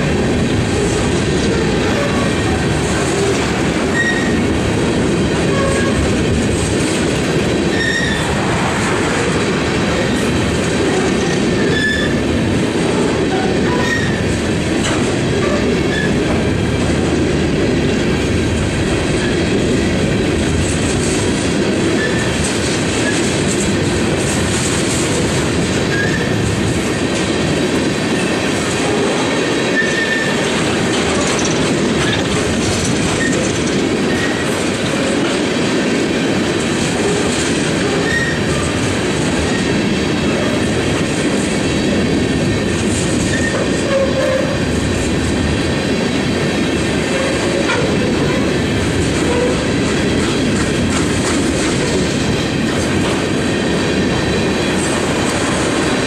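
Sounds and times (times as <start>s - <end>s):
train wheels clicking over rail joints: 0.0s - 56.0s
wheel squeals: 3.9s - 4.4s, 11.6s - 12.2s.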